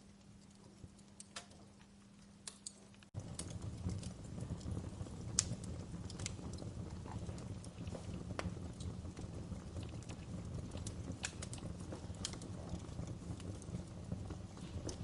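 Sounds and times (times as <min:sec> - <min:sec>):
fireplace crackling and popping: 0:00.0 - 0:15.0
low rumble of flames: 0:00.0 - 0:15.0.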